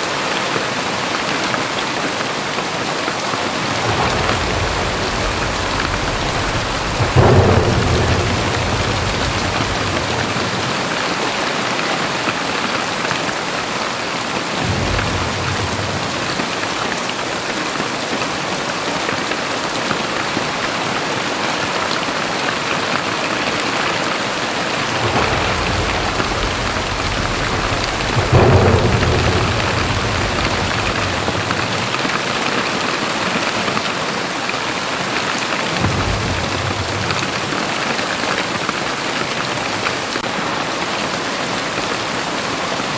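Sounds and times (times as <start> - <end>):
heavy rain falling: 0.0 - 42.9
low rumbles: 3.4 - 11.8, 14.6 - 17.5, 24.2 - 33.0, 35.6 - 40.2.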